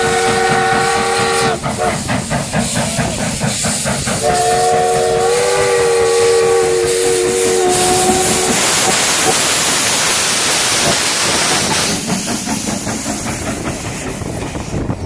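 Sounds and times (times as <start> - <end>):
steam hissing: 0.0 - 15.0
steam locomotive chuffing: 0.0 - 15.0
train chime whistle: 4.2 - 8.6.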